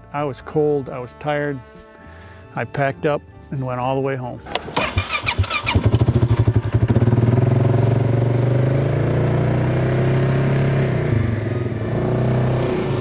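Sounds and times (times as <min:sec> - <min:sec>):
small engine running: 0:04.5 - 0:08.0.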